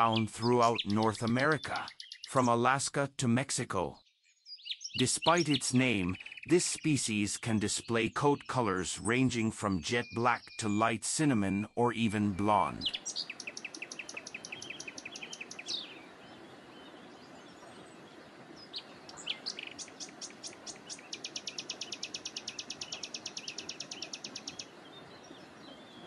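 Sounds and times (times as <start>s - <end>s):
small bird trilling: 12.9s - 16.0s, 18.7s - 24.7s.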